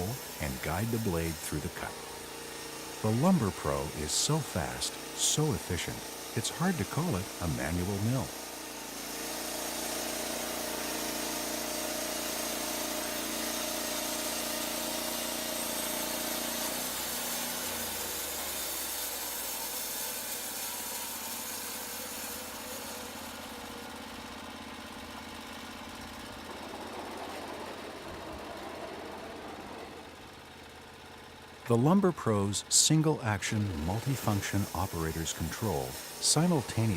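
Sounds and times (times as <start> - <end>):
band blade cutting log: 0.0 - 23.8, 33.6 - 36.9
petrol engine running: 23.5 - 36.9.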